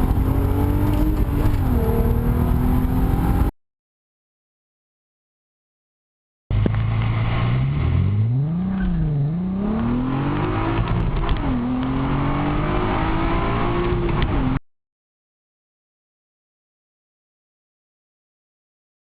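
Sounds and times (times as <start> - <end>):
car engine accelerating hard: 0.0 - 3.5, 6.5 - 14.6.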